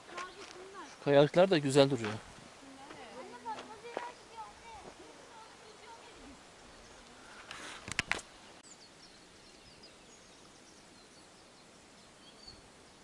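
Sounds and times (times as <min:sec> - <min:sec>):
rustle: 0:00.0 - 0:13.0
faint bird chirps: 0:04.0 - 0:07.5, 0:08.6 - 0:13.0.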